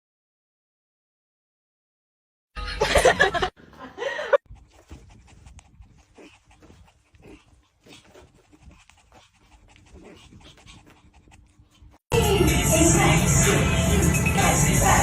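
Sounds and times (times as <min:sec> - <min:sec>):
dog panting: 0:04.4 - 0:12.1
loud music: 0:12.1 - 0:15.0.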